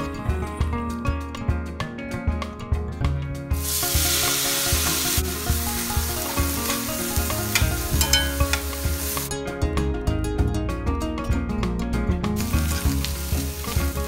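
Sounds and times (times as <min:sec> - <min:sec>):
corn sizzling in butter: 0:03.6 - 0:09.3, 0:12.4 - 0:14.0.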